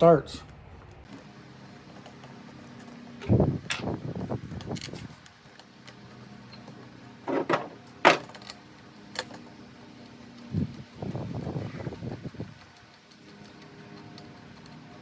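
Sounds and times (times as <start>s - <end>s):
hard parts clicking and knocking: 6.6s - 8.6s.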